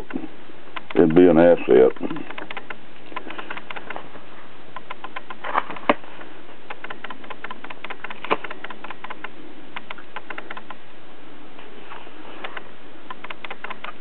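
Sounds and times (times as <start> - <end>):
steady hiss: 0.0 - 14.0
sharp knocks: 6.7 - 10.7.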